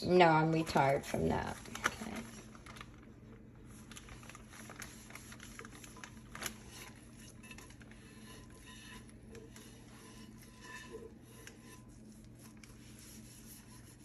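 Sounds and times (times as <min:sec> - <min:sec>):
light rubbing: 0:04.7 - 0:14.0.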